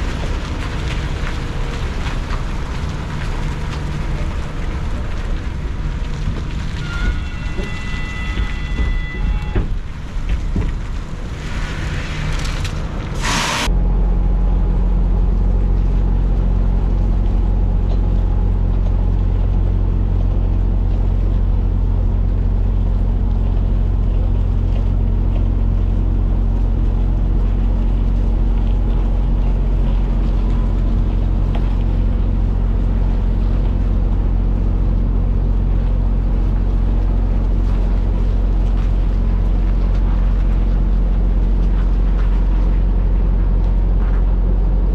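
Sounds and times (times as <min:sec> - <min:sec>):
rain-like hiss: 0:00.0 - 0:13.7
truck diesel engine droning: 0:00.0 - 0:44.9.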